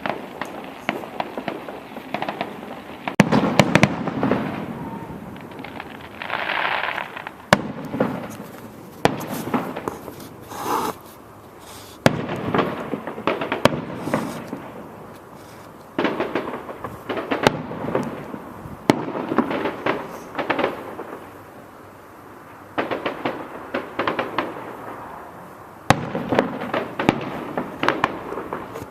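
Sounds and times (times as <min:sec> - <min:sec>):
fireworks bangs: 0:00.0 - 0:21.5, 0:22.7 - 0:28.9
fireworks hissing rushes: 0:00.0 - 0:22.0
fireworks crackling: 0:00.0 - 0:28.9.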